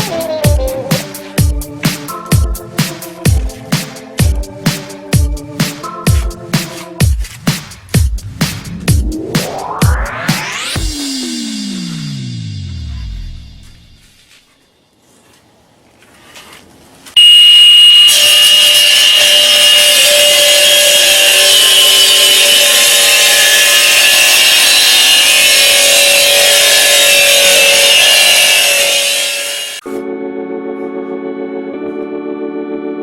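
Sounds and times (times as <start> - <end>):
power tool cutting brick: 17.2 - 29.8.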